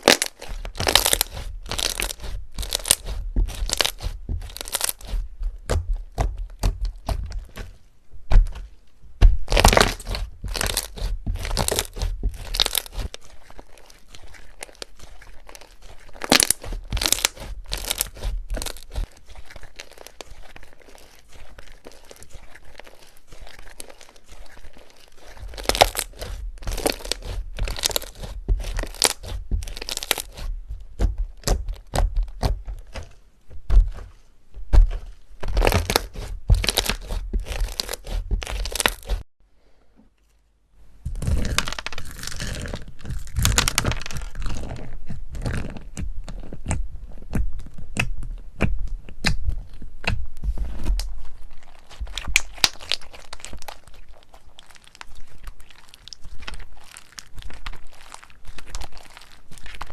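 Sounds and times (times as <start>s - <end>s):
slime squeezed by hand: 0.0s - 7.7s, 9.4s - 33.1s.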